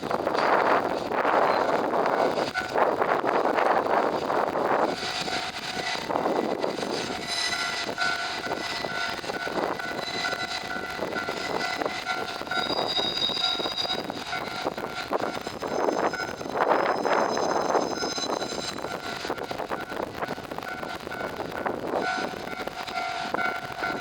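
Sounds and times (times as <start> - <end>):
train wheels on rails: 0.0 - 24.0
high-pitched ringing tones: 4.8 - 24.0.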